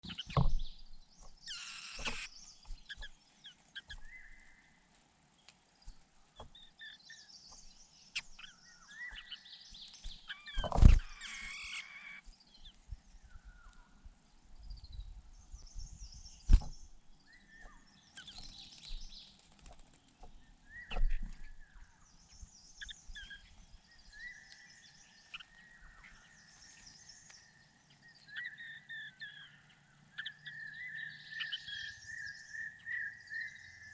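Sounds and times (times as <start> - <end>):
birds chirping: 0.0 - 33.9
whistled bird notes: 30.2 - 33.9.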